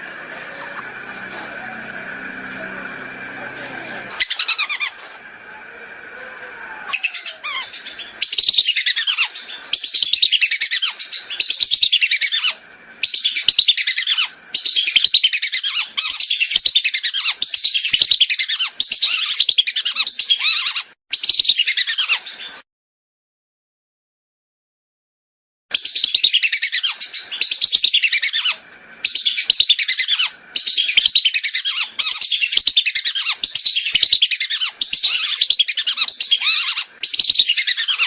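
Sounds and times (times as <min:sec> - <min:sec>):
whistling duck calls: 0:25.8 - 0:38.0.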